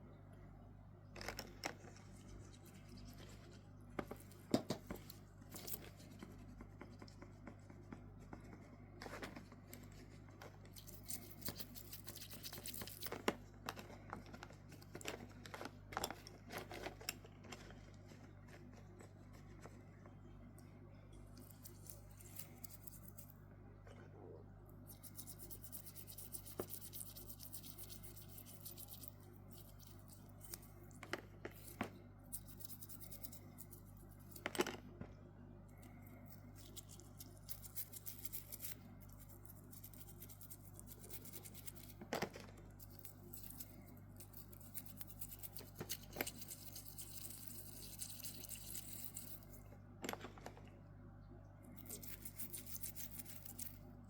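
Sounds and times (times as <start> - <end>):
steady low hum: 0.0 - 54.0
scraping of small watch parts: 9.0 - 19.8, 25.0 - 34.8, 35.7 - 50.5, 51.7 - 53.8.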